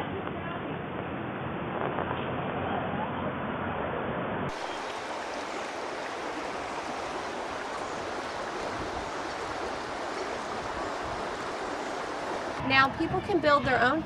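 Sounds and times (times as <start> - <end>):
water running: 4.5 - 14.0.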